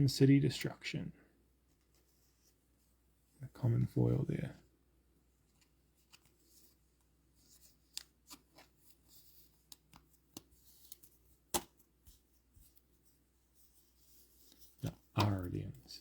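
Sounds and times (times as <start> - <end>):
cards shuffled and rustling: 5.5 - 16.0.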